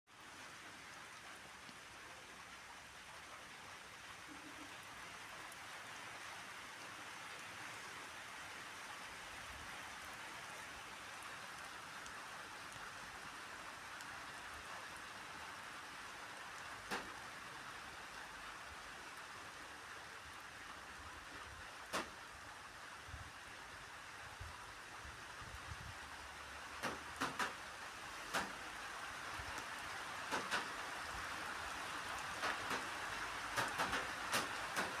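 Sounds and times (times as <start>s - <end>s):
steady rain falling: 0.1s - 35.0s
single raindrops smacking: 26.8s - 28.6s, 29.6s - 30.9s, 32.3s - 35.0s.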